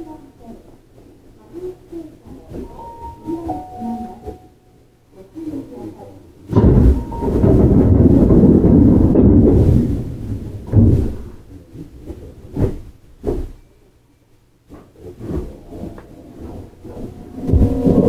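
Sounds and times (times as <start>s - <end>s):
train rumbling: 6.6s - 11.4s, 15.2s - 18.0s.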